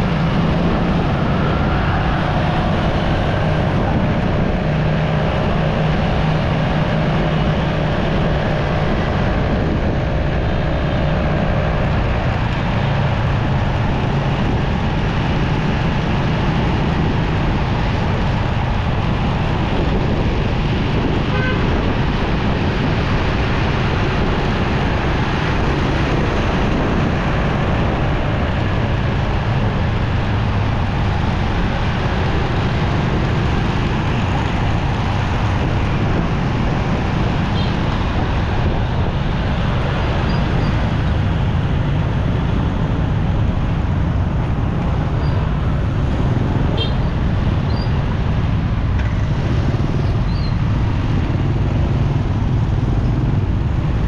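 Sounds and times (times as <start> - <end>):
surrounding traffic: 0.0 - 54.0
wind rush on microphone: 0.0 - 54.0
motorcycle engine: 20.8 - 22.8, 23.5 - 54.0.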